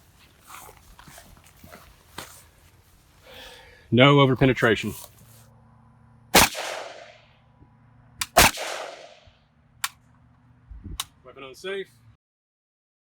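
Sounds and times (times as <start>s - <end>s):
rifle shots with echo: 6.3s - 7.3s, 8.2s - 9.3s.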